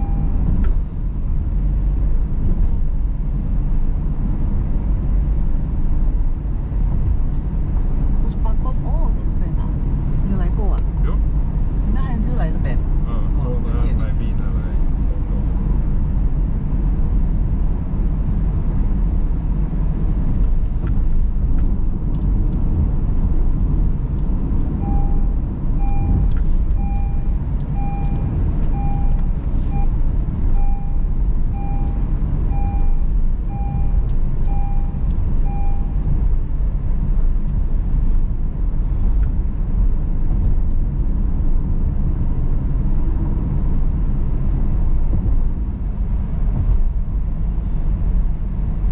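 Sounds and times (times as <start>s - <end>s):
short electronic beep: 0.0s - 0.5s, 24.8s - 30.0s, 30.6s - 36.1s
car engine and tyres rumbling: 0.0s - 48.9s.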